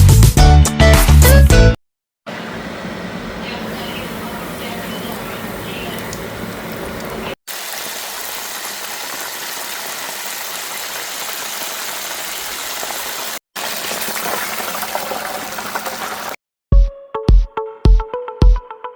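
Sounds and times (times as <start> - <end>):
chicken deep-frying in oil: 2.3 - 16.4.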